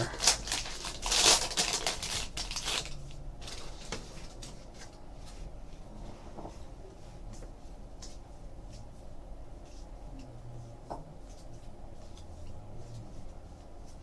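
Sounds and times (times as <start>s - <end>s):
card wrapper crinkling: 0.0s - 3.6s.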